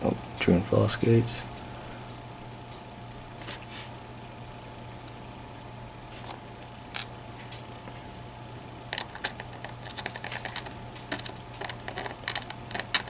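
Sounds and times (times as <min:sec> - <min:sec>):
steady low hum: 0:00.0 - 0:13.0
small metal parts clicking: 0:08.9 - 0:13.0.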